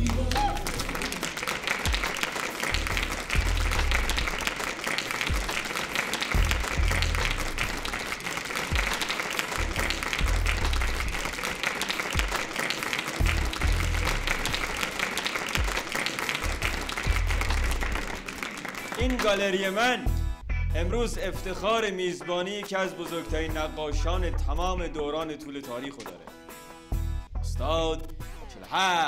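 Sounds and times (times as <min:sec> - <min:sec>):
background music with low pulse: 0:00.0 - 0:11.5, 0:13.2 - 0:15.0, 0:15.6 - 0:28.8
crowd applauding: 0:00.0 - 0:20.0.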